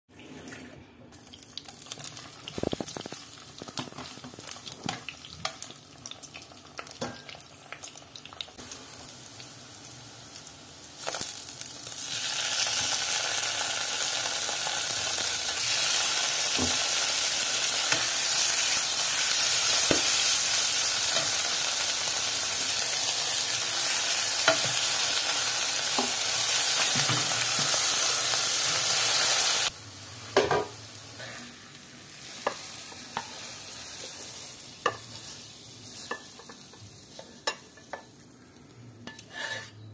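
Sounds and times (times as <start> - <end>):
loud steady sizzle: 1.2 - 37.6
fish frying in oil: 1.3 - 9.5, 10.9 - 29.8.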